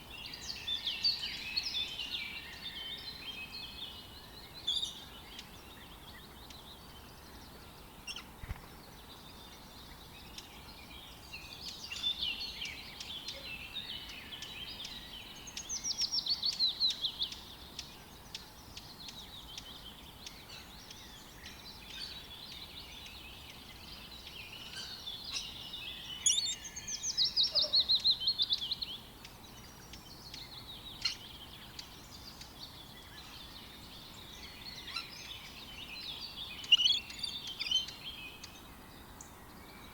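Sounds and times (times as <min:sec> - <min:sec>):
wild birds chirping and singing: 0:00.0 - 0:39.9
loud rapid bird trills: 0:26.1 - 0:27.9.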